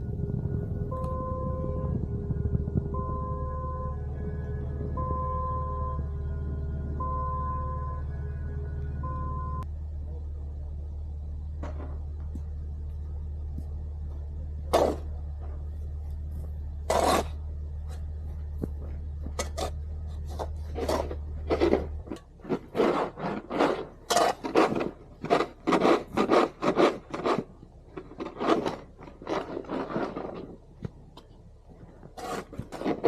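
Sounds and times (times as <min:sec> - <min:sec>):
low engine hum: 0:00.0 - 0:33.0
snow shovel scraping: 0:16.8 - 0:17.4, 0:19.4 - 0:30.6, 0:32.2 - 0:33.0.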